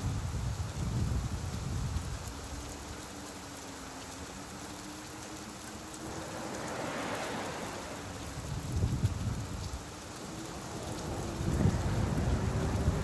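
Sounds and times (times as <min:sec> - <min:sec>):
steady rain falling: 0:00.0 - 0:13.0
rush of noise: 0:05.8 - 0:13.0
low rumble: 0:06.0 - 0:13.0.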